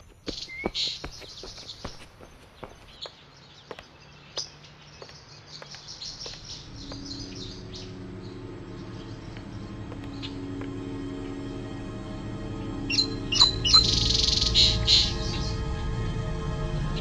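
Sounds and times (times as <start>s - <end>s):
small birds chirping: 0.0s - 11.4s, 12.8s - 15.7s
low steady drone: 6.4s - 17.0s.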